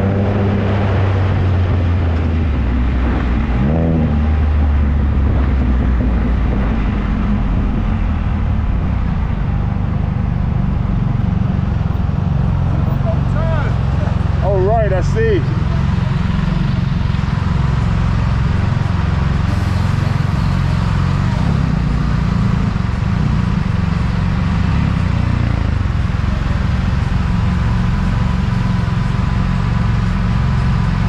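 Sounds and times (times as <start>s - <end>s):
wind rumble on microphone: 0.0s - 12.2s
three-cylinder engine running: 0.0s - 31.0s.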